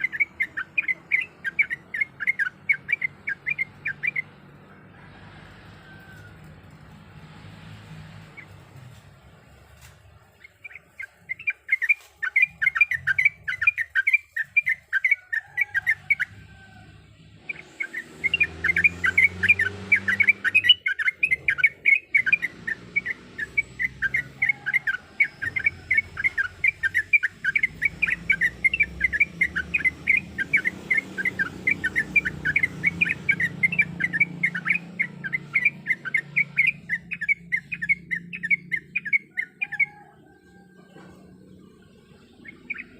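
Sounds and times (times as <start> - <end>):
bird singing chattering notes: 0.0 - 4.6, 9.8 - 16.3, 17.4 - 40.2, 41.2 - 42.9.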